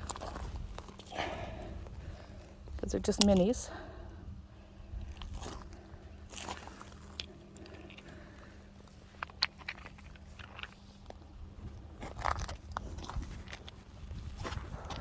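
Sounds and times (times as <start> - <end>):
footsteps crunching on gravel: 0.0 - 1.1, 5.0 - 15.0.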